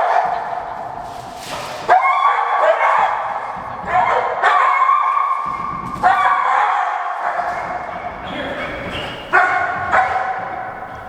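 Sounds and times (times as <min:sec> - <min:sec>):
dog huffing: 0:07.9 - 0:11.0
dog whining: 0:08.2 - 0:11.0.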